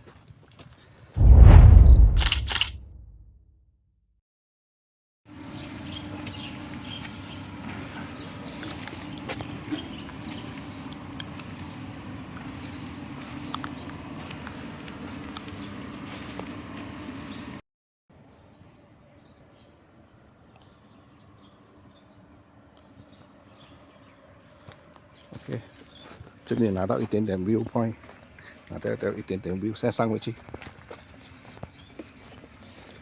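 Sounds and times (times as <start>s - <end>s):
insect drone: 5.3s - 17.6s, 18.2s - 25.3s.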